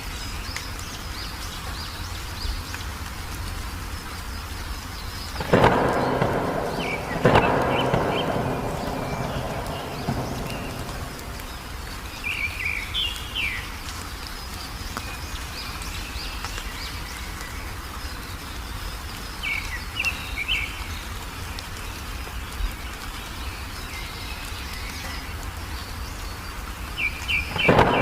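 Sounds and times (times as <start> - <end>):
songbird chirping: 0.0 - 28.0
low background rumble: 4.9 - 13.3.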